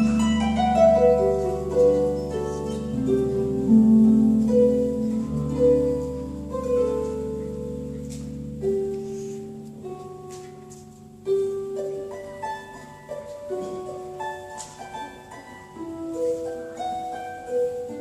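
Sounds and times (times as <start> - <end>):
harp melody: 0.0 - 18.0.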